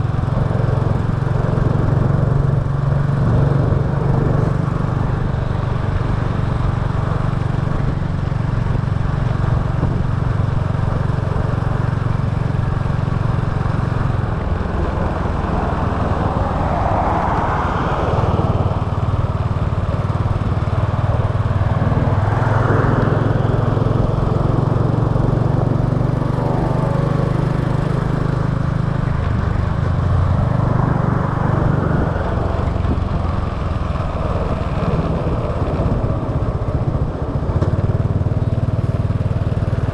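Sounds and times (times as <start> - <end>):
motorbike engine running: 0.0 - 17.3, 18.2 - 39.9
rushing sound: 13.3 - 19.6.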